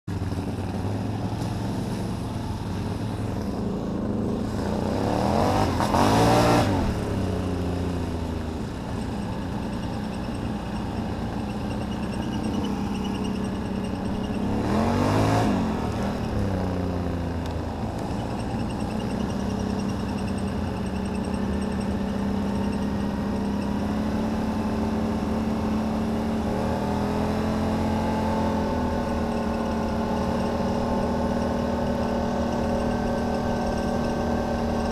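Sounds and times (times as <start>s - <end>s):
atv engine idling and revving: 0.0s - 34.9s
odd transmission noise: 0.1s - 23.8s.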